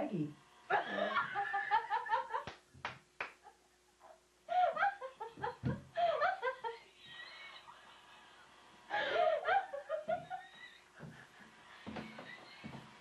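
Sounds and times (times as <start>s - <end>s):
women laughing: 0.7s - 2.5s, 4.5s - 11.4s.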